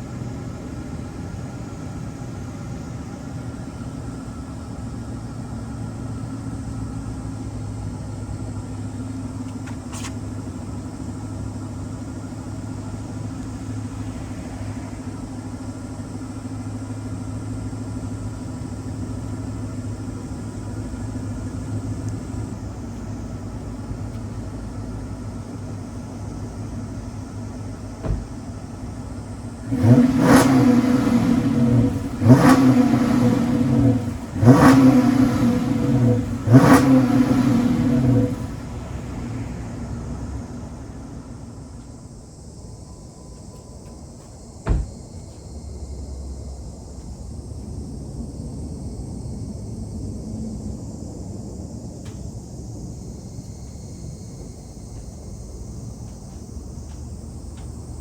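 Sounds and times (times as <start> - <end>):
car engine idling: 0.0 - 58.0
short knock: 28.0 - 28.3, 44.6 - 45.0.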